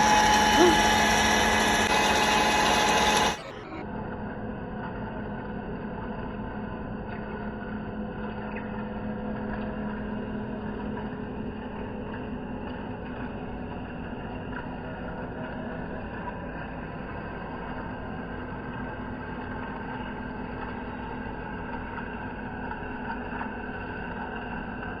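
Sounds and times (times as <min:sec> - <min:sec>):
lathe running: 0:00.0 - 0:04.1.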